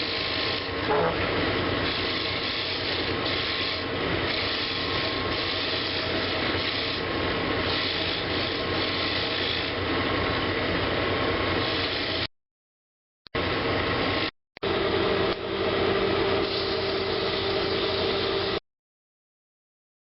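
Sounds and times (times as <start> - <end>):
tool rubbing against turning wood: 0.0 - 9.8
woodturning lathe spinning: 0.0 - 12.3.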